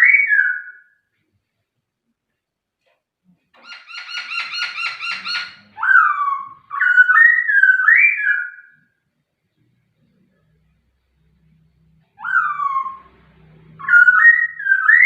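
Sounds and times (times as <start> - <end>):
bird singing whistled notes: 3.7 - 8.8, 12.2 - 15.0.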